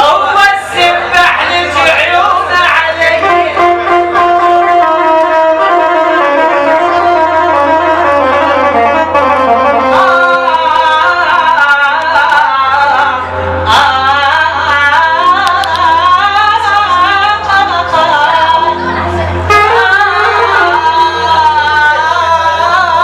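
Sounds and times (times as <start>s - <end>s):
man singing ornamented vocal line: 0.0s - 5.0s, 9.7s - 23.0s
sustained instrumental backing: 0.2s - 23.0s.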